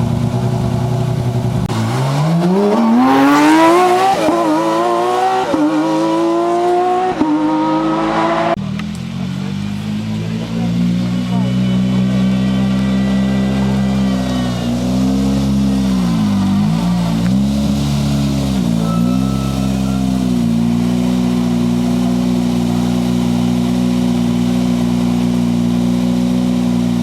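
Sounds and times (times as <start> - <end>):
car engine running: 0.0 - 2.0, 7.5 - 27.0.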